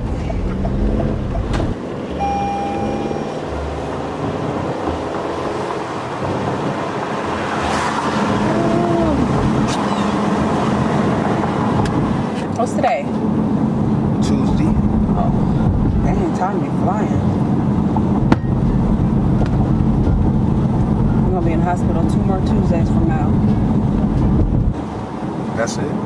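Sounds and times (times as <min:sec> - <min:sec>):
car engine and road rumble: 0:00.0 - 0:26.0
short steady tone: 0:02.1 - 0:03.6.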